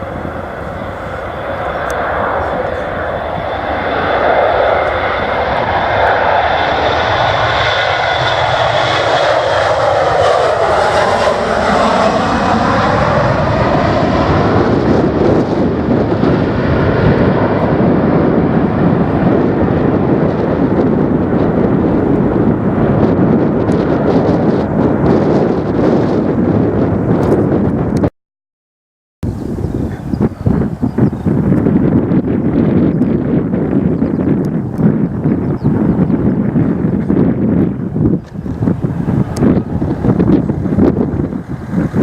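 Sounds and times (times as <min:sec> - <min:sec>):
airliner engines passing: 0:00.0 - 0:28.1, 0:29.2 - 0:42.0.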